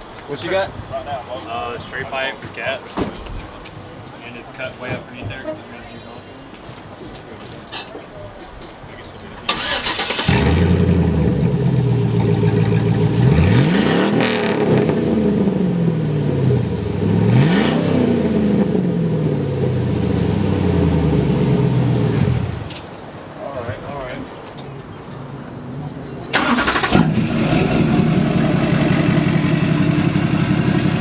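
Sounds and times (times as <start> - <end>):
truck engine starting and idling: 9.4 - 22.8, 26.3 - 31.0
engine revving: 9.5 - 22.7, 26.4 - 31.0.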